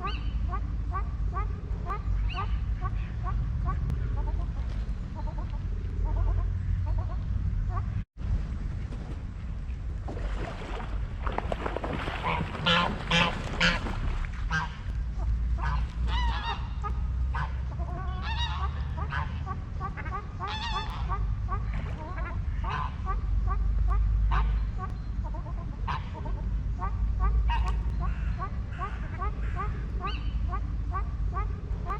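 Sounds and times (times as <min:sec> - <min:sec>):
steady low rumble: 0:00.0 - 0:31.9
geese honking: 0:12.2 - 0:31.9.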